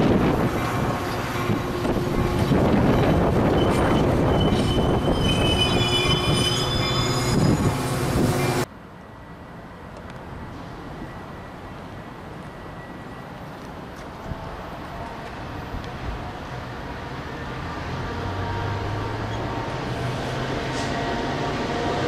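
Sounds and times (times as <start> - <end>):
high-pitched squealing: 1.9 - 8.6.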